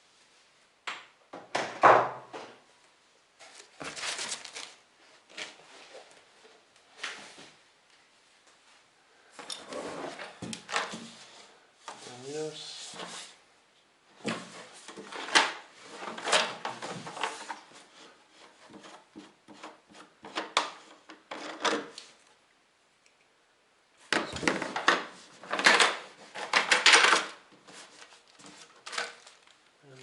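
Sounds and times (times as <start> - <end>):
packaging rustling: 3.5 - 5.6, 24.4 - 29.8.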